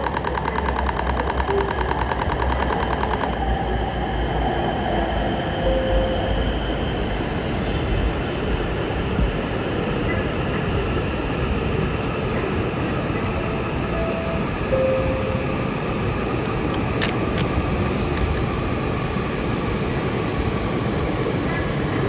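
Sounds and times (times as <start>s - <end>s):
high-pitched squealing whine: 0.0s - 16.4s
train rushing noise: 0.0s - 22.0s.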